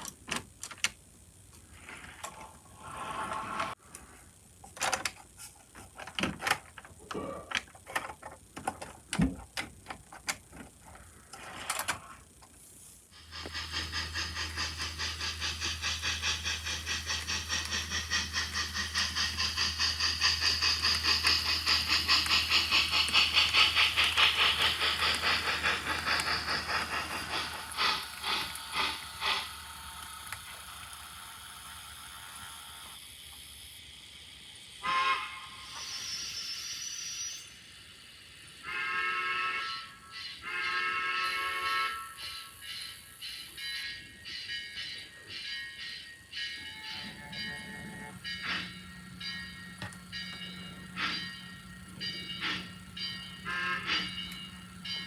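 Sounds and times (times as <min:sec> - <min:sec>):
model train clattering: 0:13.2 - 0:33.0, 0:41.5 - 0:55.0
train horn blasts: 0:34.8 - 0:35.6, 0:38.6 - 0:42.4, 0:53.4 - 0:54.4.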